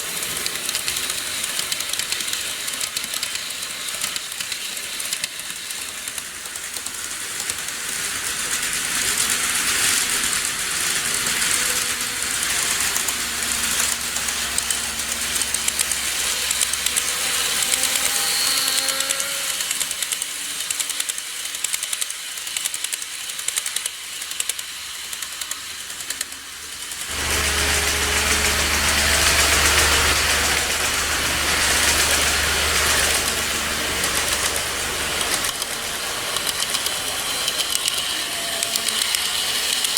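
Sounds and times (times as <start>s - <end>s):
model train rattle and whir: 0.0s - 39.9s
low hum: 10.6s - 18.7s, 27.1s - 37.6s.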